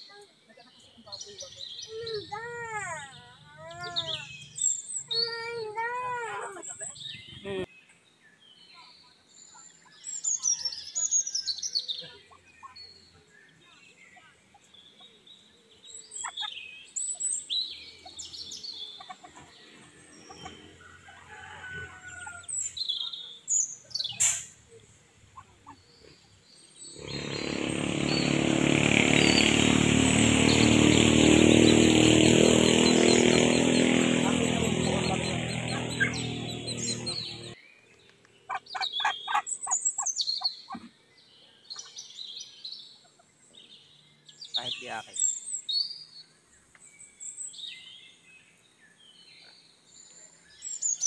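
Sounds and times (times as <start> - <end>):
ducklings peeping: 16.2 - 16.6, 18.8 - 20.6, 27.0 - 37.6, 38.5 - 40.9
small engine running: 26.9 - 37.6.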